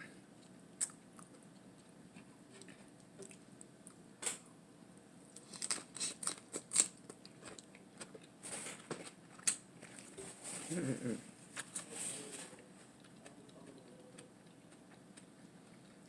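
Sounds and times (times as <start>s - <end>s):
crisp chewing crunches: 5.3s - 10.2s.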